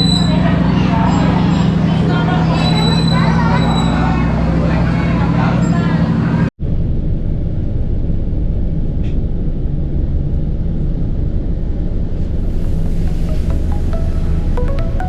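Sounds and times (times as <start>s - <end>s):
vehicle rumbling in motion: 6.0s - 15.0s.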